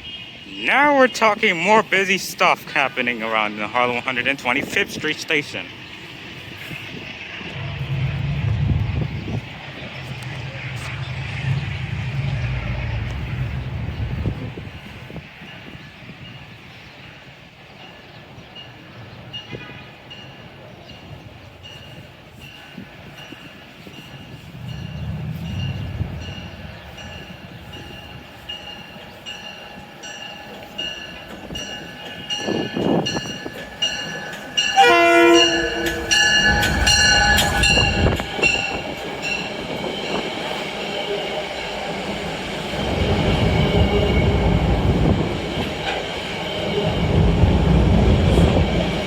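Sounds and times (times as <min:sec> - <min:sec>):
train passing: 0:00.0 - 0:49.0
wind buffeting microphone: 0:06.1 - 0:16.7, 0:20.4 - 0:29.9, 0:30.7 - 0:49.0
train horn chord: 0:33.8 - 0:39.5.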